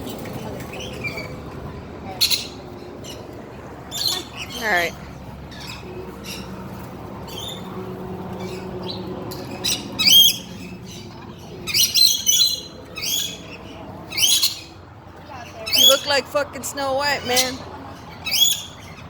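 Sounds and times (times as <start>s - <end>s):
birds squawking: 3.9s - 6.6s, 8.4s - 14.8s, 15.4s - 19.0s.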